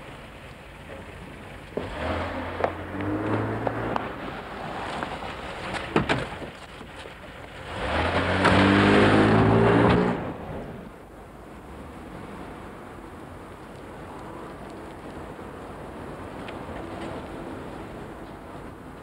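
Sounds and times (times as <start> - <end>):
car engine accelerating away: 1.8 - 4.8, 7.6 - 10.8.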